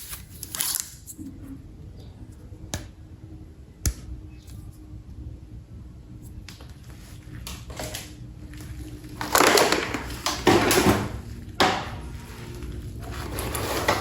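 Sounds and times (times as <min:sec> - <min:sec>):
packaging rustling scrapes: 0:12.1 - 0:14.0.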